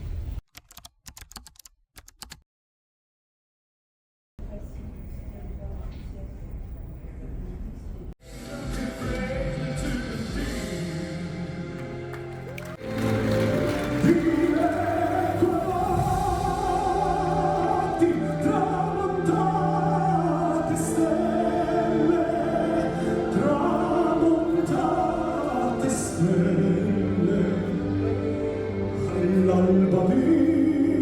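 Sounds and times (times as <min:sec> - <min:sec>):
operatic singing: 0:08.2 - 0:31.0.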